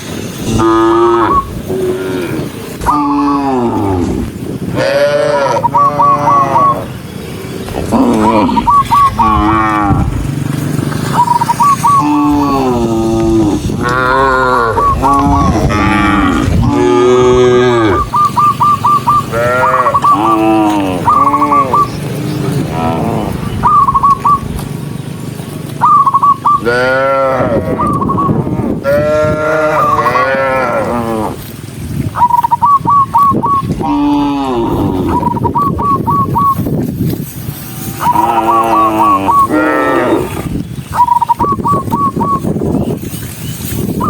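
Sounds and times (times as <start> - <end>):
high chirping calls: 0.0 - 28.5, 31.9 - 44.0
cattle mooing: 0.4 - 7.1, 7.7 - 10.6, 11.8 - 18.2, 19.0 - 23.5, 26.6 - 31.6, 33.7 - 35.5, 37.8 - 40.6.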